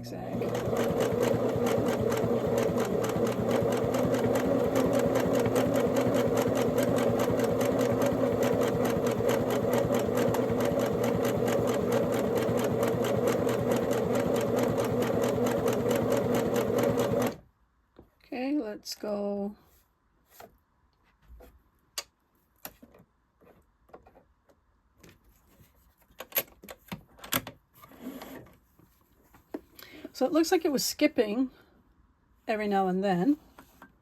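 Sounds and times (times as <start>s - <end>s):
sewing machine motor humming: 0.3s - 17.4s.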